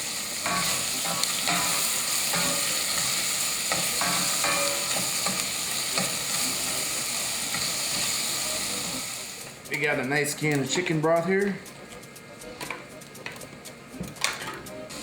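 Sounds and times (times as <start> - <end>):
onions sizzling in a pan: 0.0 - 10.8.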